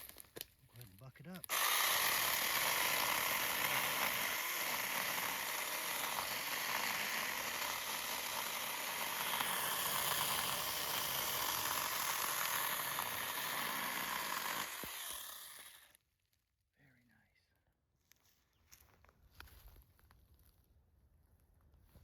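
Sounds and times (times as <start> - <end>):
chainsaw cutting wood: 1.4 - 16.0.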